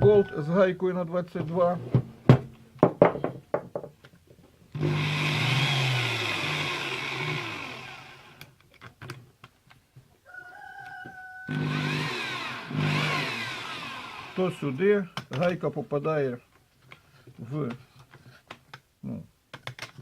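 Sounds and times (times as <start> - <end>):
electric drill motor: 4.8 - 8.5, 11.5 - 14.8
handling clicks and knocks: 15.1 - 15.7, 19.5 - 20.0.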